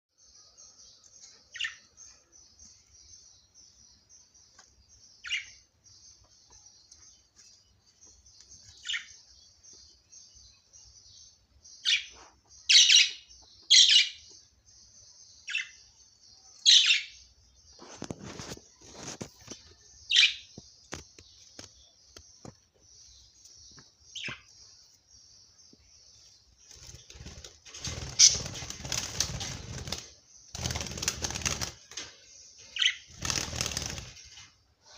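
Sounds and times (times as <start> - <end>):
wings fluttering: 17.8 - 19.8, 26.6 - 32.2, 32.8 - 34.6
sharp bird calls: 26.7 - 34.4.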